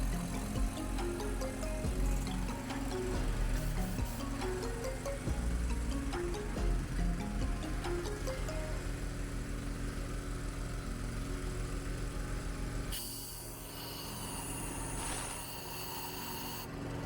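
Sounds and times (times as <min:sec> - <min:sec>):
air compressor throbbing: 0:00.0 - 0:17.0
compressed air hissing and whistling: 0:03.5 - 0:04.9, 0:12.9 - 0:16.7.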